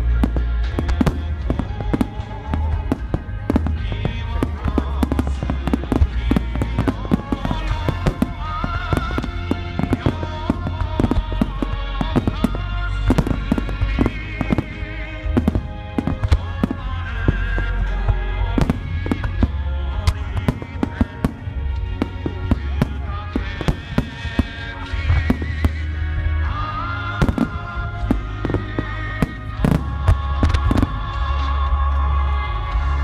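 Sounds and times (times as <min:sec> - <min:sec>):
deep rumble: 0:00.0 - 0:33.0
fireworks crackling: 0:00.0 - 0:33.0
music playing: 0:00.0 - 0:33.0
firework shells bursting: 0:00.2 - 0:25.9.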